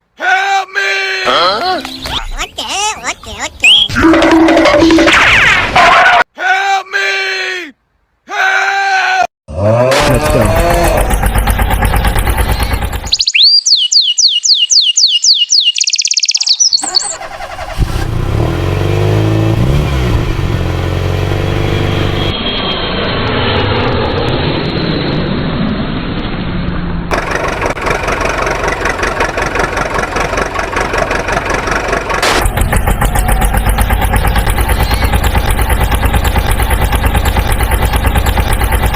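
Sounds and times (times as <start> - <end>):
engine starting and revving: 9.7 - 13.3, 16.8 - 22.3, 27.1 - 38.9
steady pulsing engine: 10.0 - 13.2, 17.1 - 22.5, 27.1 - 38.9
high chirping whistle sweeps: 13.2 - 17.2.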